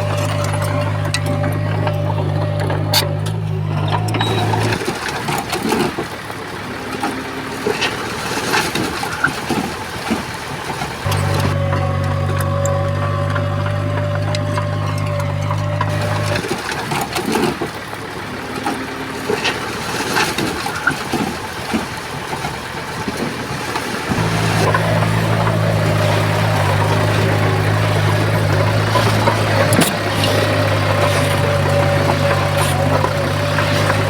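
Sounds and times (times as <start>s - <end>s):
bulldozer diesel engine drone: 0.0s - 34.0s.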